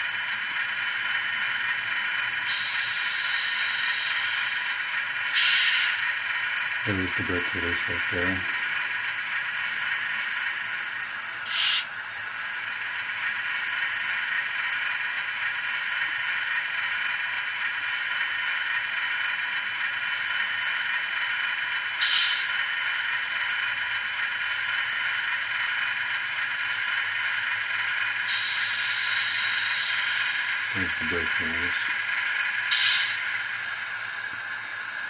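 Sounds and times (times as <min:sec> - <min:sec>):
diesel engine idling: 0:00.0 - 0:35.0
air hisses: 0:05.4 - 0:06.0, 0:11.5 - 0:11.9, 0:22.0 - 0:22.5, 0:28.3 - 0:30.7, 0:32.7 - 0:33.3.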